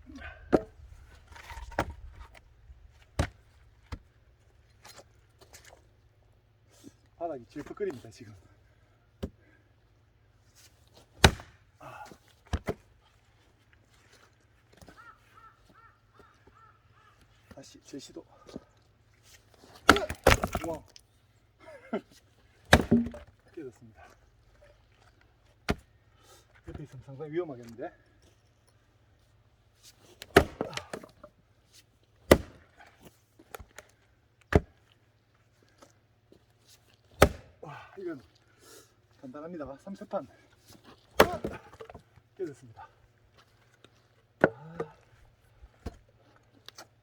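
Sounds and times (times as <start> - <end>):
axe striking a log: 0.5 - 2.3, 3.2 - 4.0, 11.2 - 11.6, 12.5 - 12.8, 19.8 - 20.8, 22.7 - 23.3, 30.2 - 31.2, 32.3 - 32.7, 34.5 - 34.8, 37.2 - 37.6, 41.2 - 42.0, 44.4 - 45.0
crows cawing: 14.9 - 17.4
sharp knocks: 22.8 - 23.2.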